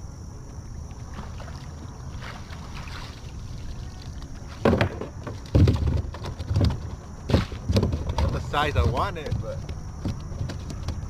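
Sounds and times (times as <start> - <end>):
water noise: 0.0 - 7.7
wind: 0.0 - 11.0
cast net splashing: 1.1 - 4.8.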